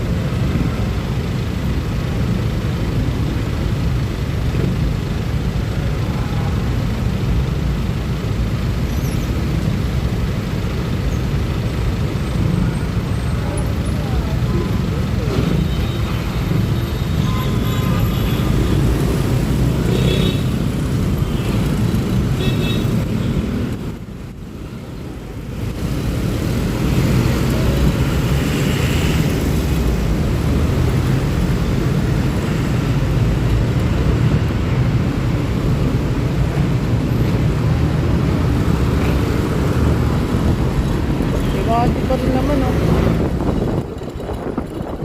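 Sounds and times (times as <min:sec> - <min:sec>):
road and traffic noise: 0:00.0 - 0:45.0
scooter engine rumble: 0:17.1 - 0:45.0.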